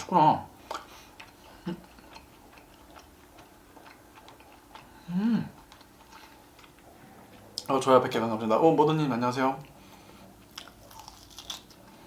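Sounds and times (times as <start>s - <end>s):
person chewing: 0.0s - 7.9s, 9.6s - 12.0s
person humming mmm: 5.0s - 5.6s.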